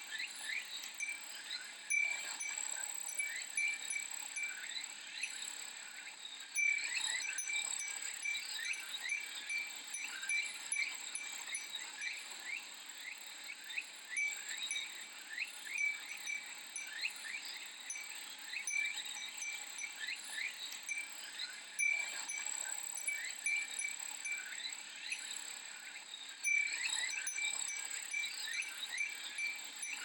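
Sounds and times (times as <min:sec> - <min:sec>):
wind chime tinkling: 0:00.4 - 0:05.4, 0:06.6 - 0:12.6, 0:14.0 - 0:25.4, 0:26.4 - 0:30.0.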